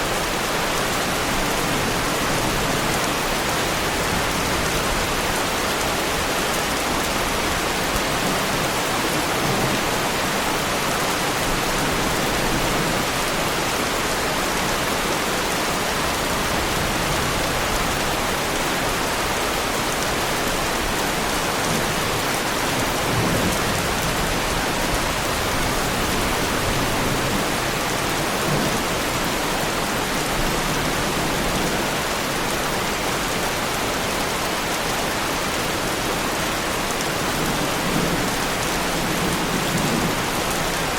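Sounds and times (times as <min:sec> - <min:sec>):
heavy rain on a car: 0:00.1 - 0:40.9.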